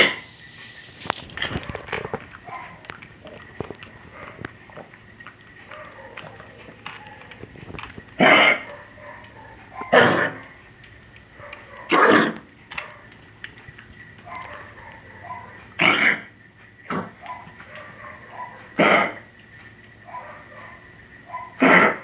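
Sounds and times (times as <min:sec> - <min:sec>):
old dog coughing: 0:08.2 - 0:09.2, 0:09.8 - 0:10.4, 0:11.8 - 0:12.5, 0:15.8 - 0:16.3, 0:16.9 - 0:17.2, 0:18.7 - 0:19.3, 0:21.6 - 0:22.0.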